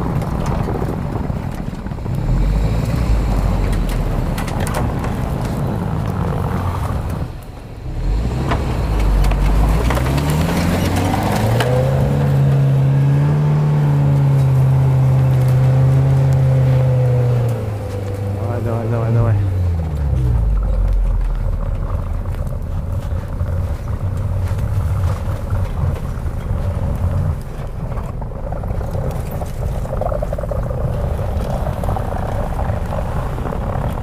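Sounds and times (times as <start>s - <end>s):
suv engine revving: 0.0s - 34.0s.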